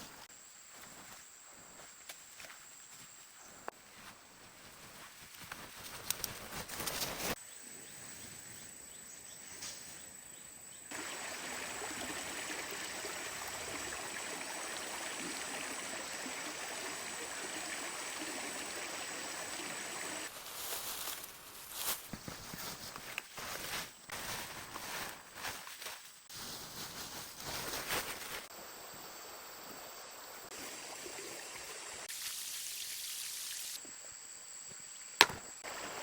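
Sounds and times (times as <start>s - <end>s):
rain hissing: 10.9s - 21.1s.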